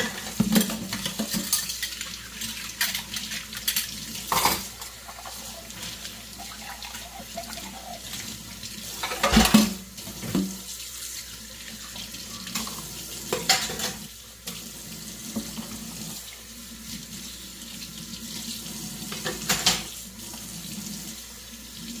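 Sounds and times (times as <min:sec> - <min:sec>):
dishes clattering: 0:00.0 - 0:08.3, 0:08.9 - 0:10.5, 0:12.3 - 0:14.1, 0:19.1 - 0:19.9
tap water running into sink: 0:00.0 - 0:22.0.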